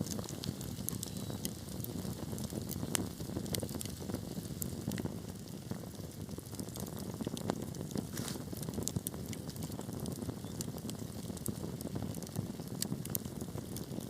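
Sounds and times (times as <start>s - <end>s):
burning wood crackling and popping: 0.0s - 14.0s
low rumble of flames: 0.0s - 14.0s.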